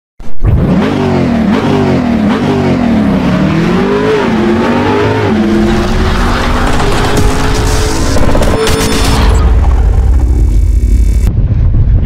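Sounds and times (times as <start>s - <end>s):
car engine revving: 0.4s - 11.3s.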